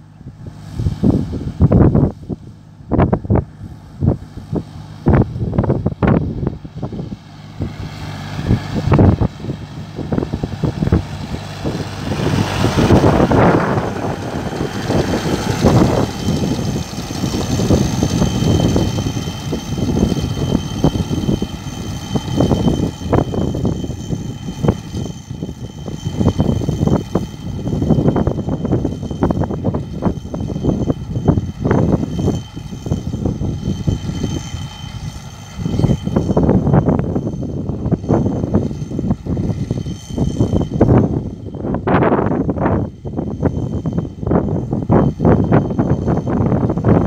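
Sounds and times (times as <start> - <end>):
faint high whine: 0.0 - 47.0
rushing noise: 0.0 - 47.0
tractor engine and fan drone: 0.0 - 47.0.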